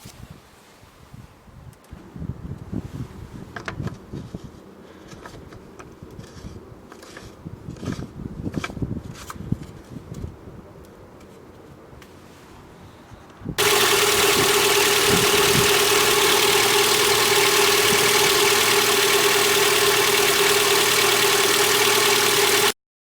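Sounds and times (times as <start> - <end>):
car engine idling: 13.6 - 22.8.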